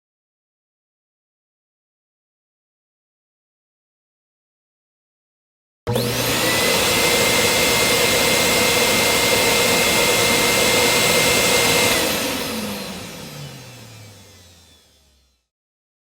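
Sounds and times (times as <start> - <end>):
motor machine whining: 5.9 - 15.5.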